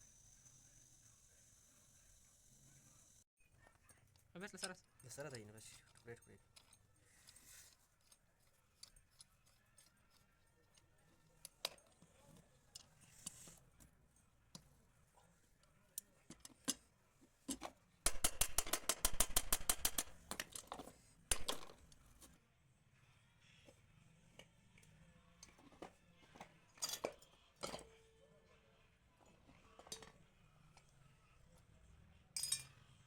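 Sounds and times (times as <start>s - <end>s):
metallic clicks of tools: 4.1s - 12.1s, 17.5s - 22.0s
rapid run of clicks: 18.1s - 20.2s.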